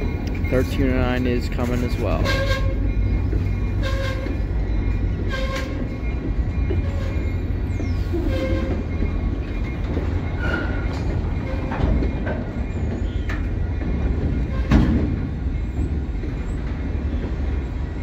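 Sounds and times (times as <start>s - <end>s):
diesel locomotive rumble: 0.0s - 18.0s
locomotive bell ringing: 0.0s - 18.0s.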